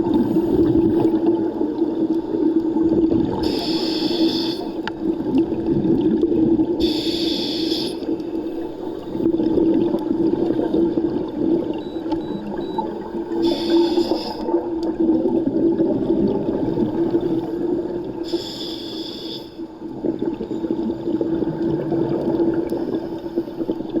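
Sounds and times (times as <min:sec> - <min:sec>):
low underwater rumble and hum: 0:00.0 - 0:24.0
diver exhaling bubbles underwater: 0:02.4 - 0:03.8, 0:13.4 - 0:18.2, 0:19.9 - 0:24.0.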